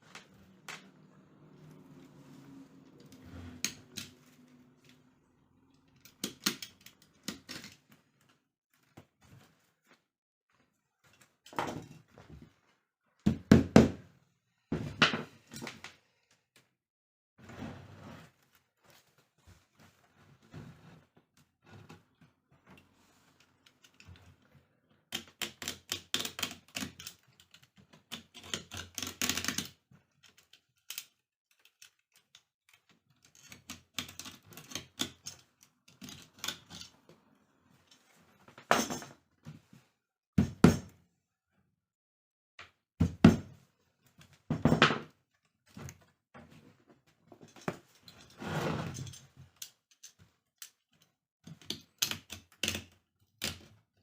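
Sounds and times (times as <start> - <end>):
scraping or rustling: 47.6 - 49.2.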